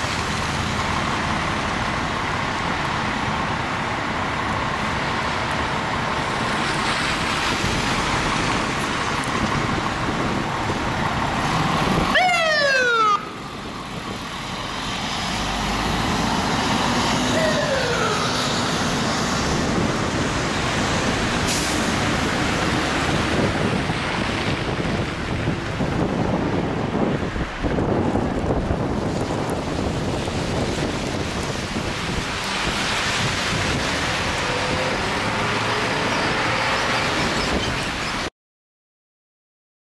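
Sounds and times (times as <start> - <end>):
fire engine rumbling: 0.0 - 38.3
street traffic rumbling: 0.0 - 38.3
siren sweeping down: 12.0 - 13.5, 17.1 - 18.7.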